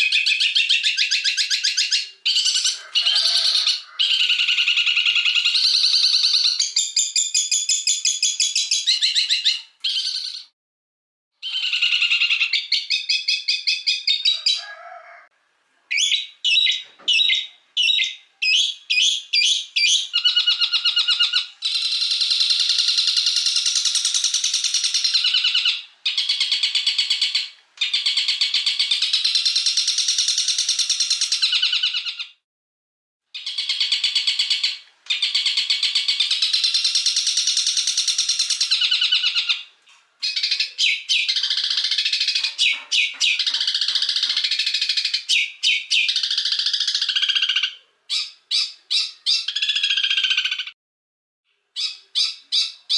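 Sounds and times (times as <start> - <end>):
songbird chattering trills: 40.2 - 50.7.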